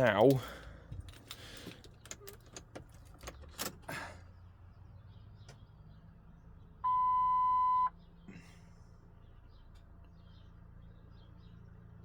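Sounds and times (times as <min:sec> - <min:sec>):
car keys rattling in ignition: 0:00.0 - 0:03.9
car warning chime beep: 0:06.8 - 0:08.0.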